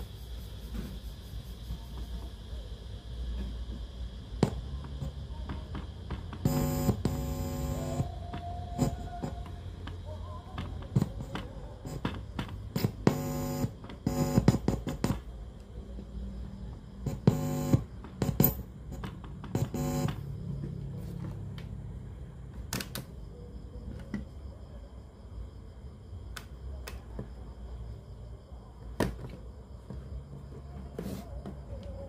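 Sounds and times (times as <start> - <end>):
electrical mains hum: 0.0 - 32.0
short buzzes: 6.4 - 8.1, 12.8 - 14.8, 17.0 - 17.9, 19.6 - 20.4.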